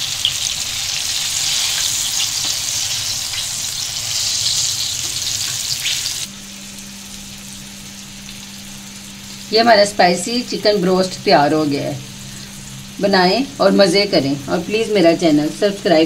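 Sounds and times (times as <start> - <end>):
deep-frying sizzle: 0.0 - 16.0
steady low hum: 6.2 - 16.0.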